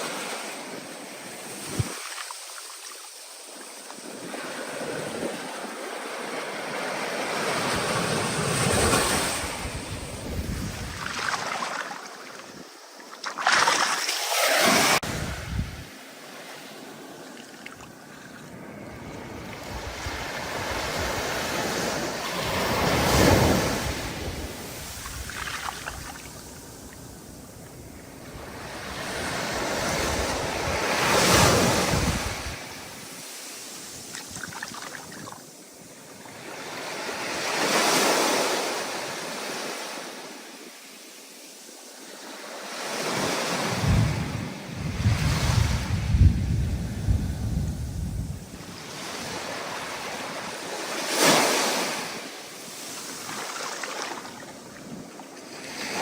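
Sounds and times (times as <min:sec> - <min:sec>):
ocean waves breaking: 0:00.0 - 0:35.4, 0:48.4 - 0:56.0.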